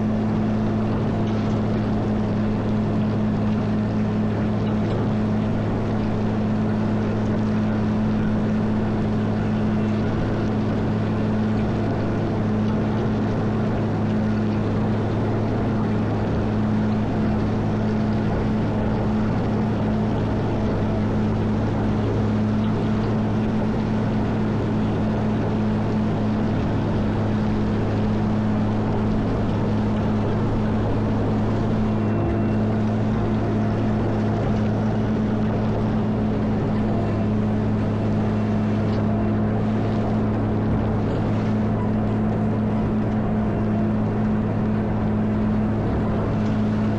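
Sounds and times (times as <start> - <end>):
diesel engine droning: 0.0 - 46.9.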